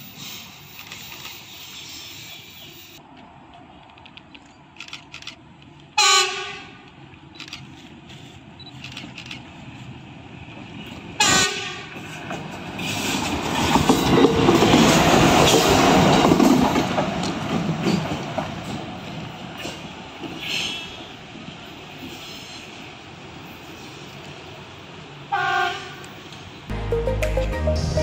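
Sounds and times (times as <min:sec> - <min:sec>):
train running on rails: 0:00.0 - 0:26.7
train horn blasts: 0:06.0 - 0:06.8, 0:11.2 - 0:12.0, 0:25.3 - 0:26.1.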